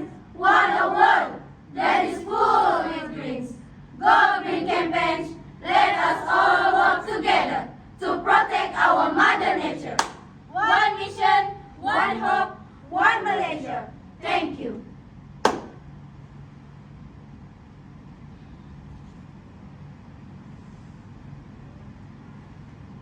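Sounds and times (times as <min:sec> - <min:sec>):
group chanting in unison: 0:00.0 - 0:14.8
sharp click: 0:15.4 - 0:15.8.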